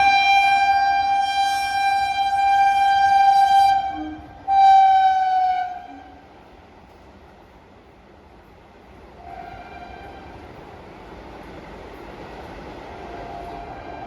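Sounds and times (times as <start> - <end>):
train horn blasts: 0.0 - 6.3, 9.2 - 10.4, 13.1 - 14.0.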